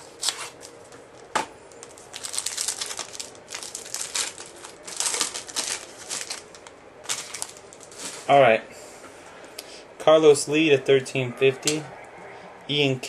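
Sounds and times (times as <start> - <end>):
card packaging rustling: 1.7 - 8.4.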